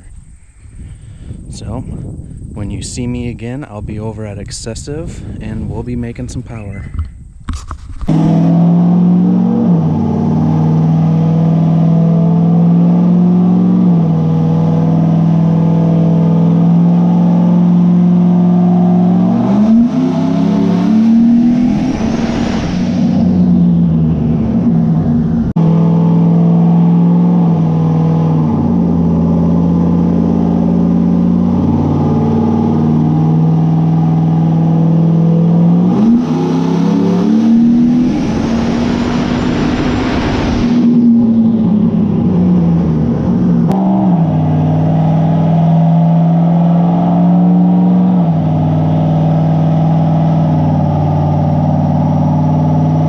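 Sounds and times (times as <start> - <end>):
loud rushing noise: 19.6 - 25.5, 36.0 - 44.8
vehicle engine running: 36.6 - 53.0.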